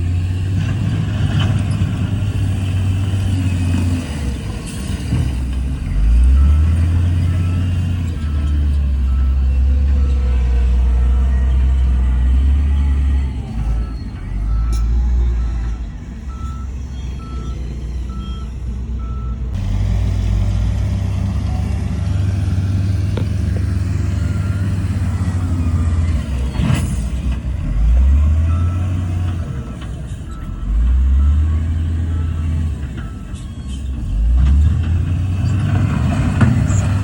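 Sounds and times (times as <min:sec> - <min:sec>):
heavy diesel engines running: 0:00.0 - 0:37.0
reversing alarm beeping: 0:06.0 - 0:19.5, 0:23.4 - 0:26.6, 0:27.8 - 0:34.1.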